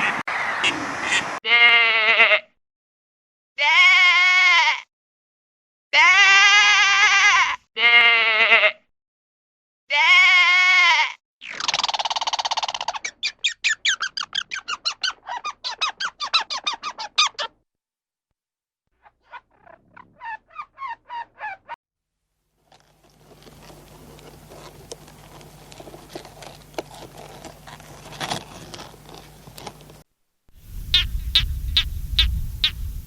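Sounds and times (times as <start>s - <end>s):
small animal squeaky chirps: 11.5s - 17.6s, 19.2s - 21.8s, 30.9s - 33.0s.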